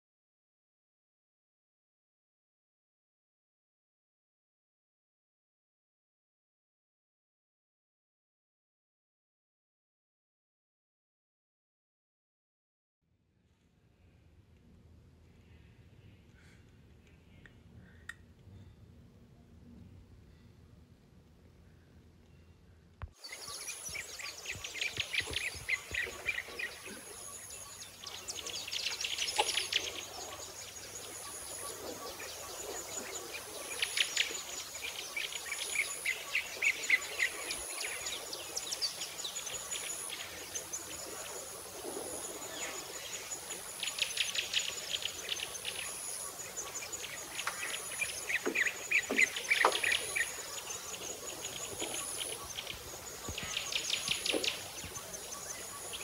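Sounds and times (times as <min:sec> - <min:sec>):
bird rapid trills: 0:23.2 - 0:56.0.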